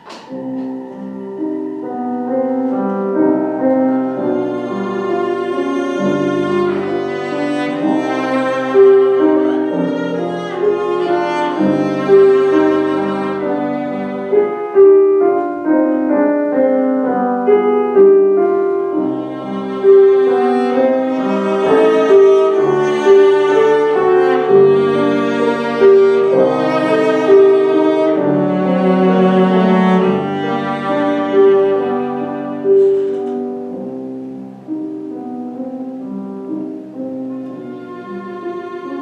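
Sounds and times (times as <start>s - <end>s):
bowed string melody: 0.0s - 39.0s
piano chords: 0.0s - 39.0s.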